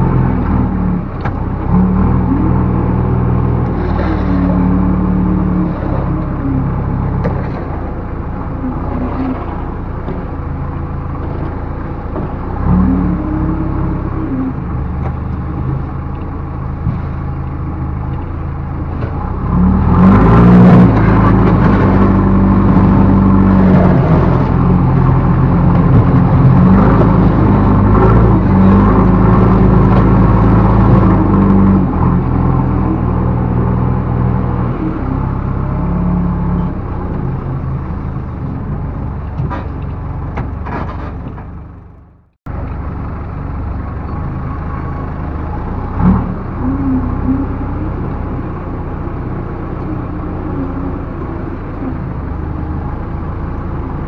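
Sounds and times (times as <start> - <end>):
backhoe diesel engine working: 0.0 - 54.0.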